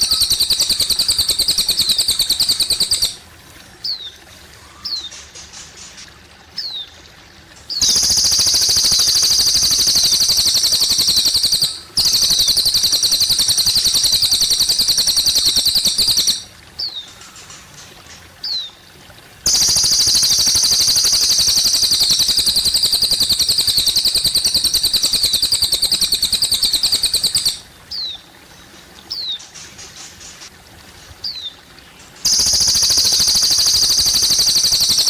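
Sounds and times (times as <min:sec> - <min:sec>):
faint trickling water: 0:00.0 - 0:35.0
songbird trilling and chirping: 0:07.8 - 0:17.0.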